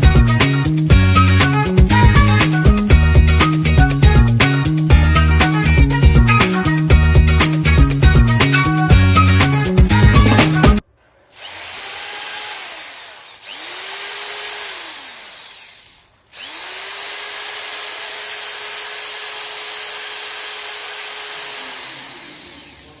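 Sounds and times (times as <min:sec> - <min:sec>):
drill motor spinning: 0:11.2 - 0:23.0.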